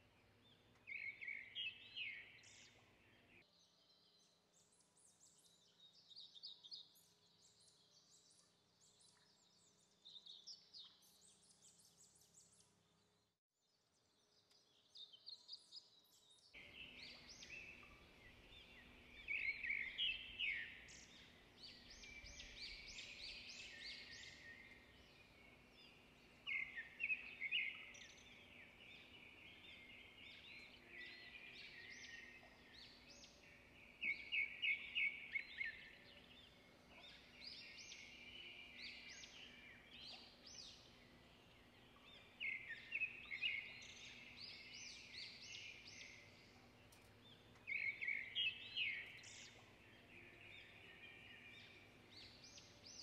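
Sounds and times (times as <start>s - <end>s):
birds chirping: 16.6s - 53.0s.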